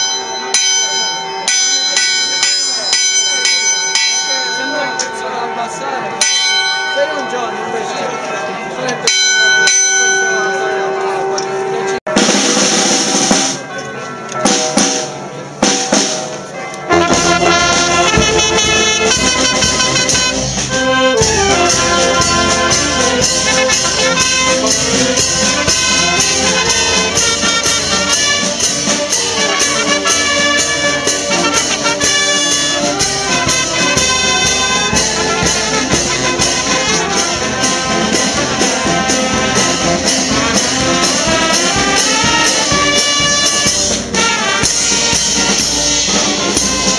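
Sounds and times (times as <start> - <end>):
brass band playing a march: 10.3 - 46.9
steady drum beat: 12.1 - 13.7, 14.4 - 46.9.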